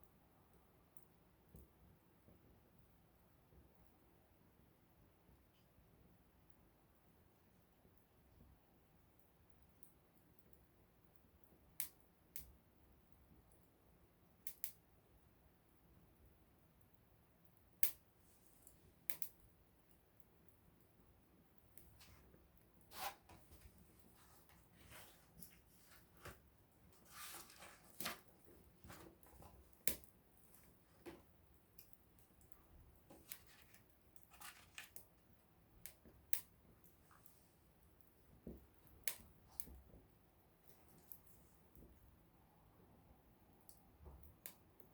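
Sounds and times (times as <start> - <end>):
burning wood popping: 21.7 - 37.2.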